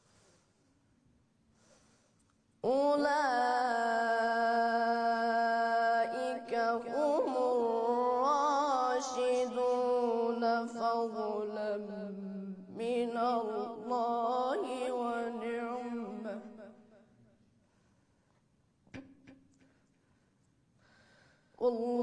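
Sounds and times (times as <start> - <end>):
person chanting melodically: 2.7 - 16.7.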